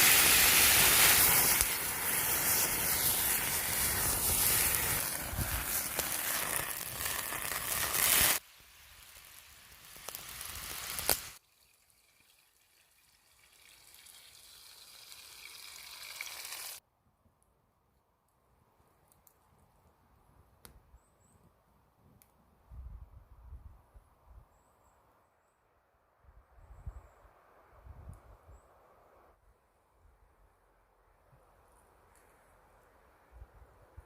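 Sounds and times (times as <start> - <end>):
fish sizzling in a pan: 0.0 - 11.4, 13.5 - 16.8.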